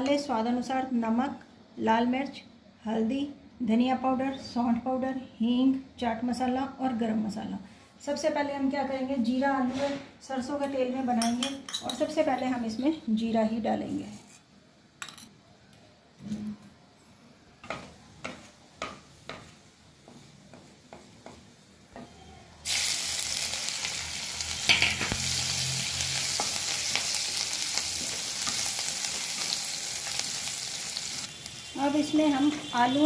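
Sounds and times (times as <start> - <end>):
loud sizzle in hot oil: 22.6 - 33.0.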